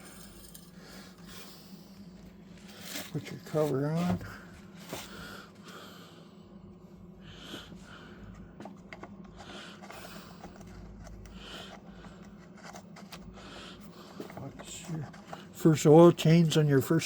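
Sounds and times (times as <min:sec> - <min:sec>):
steady low hum: 0:00.0 - 0:17.0
person breathing heavily: 0:04.2 - 0:06.5, 0:07.2 - 0:08.6, 0:09.3 - 0:12.4, 0:13.3 - 0:14.4.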